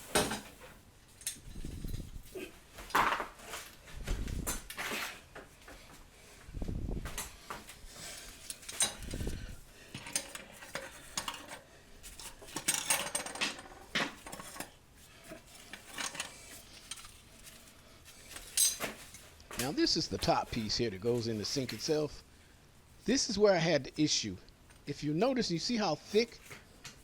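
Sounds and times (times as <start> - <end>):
metal parts clinking and rattling: 8.2 - 14.8, 15.4 - 19.8.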